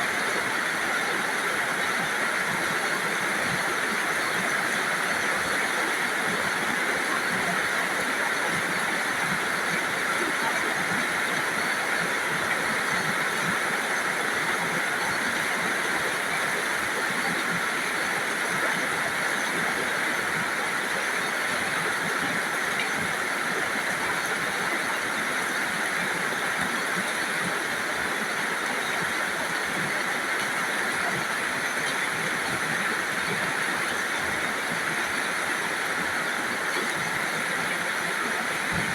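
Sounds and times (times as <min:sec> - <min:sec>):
rain falling steadily: 0:00.0 - 0:38.9.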